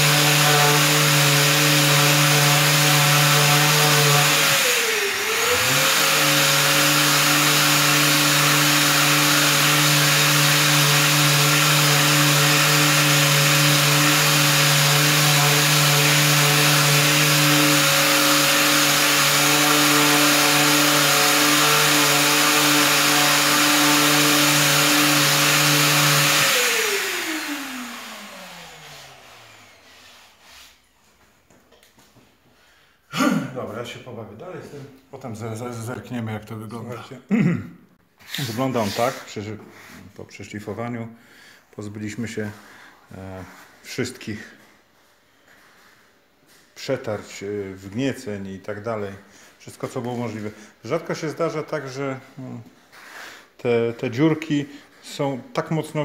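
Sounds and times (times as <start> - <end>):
power sander running: 0.0 - 30.5.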